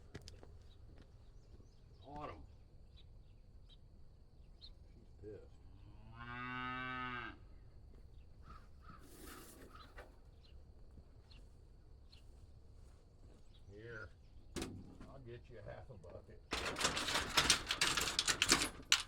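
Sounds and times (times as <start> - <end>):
cow mooing: 6.0 - 7.4.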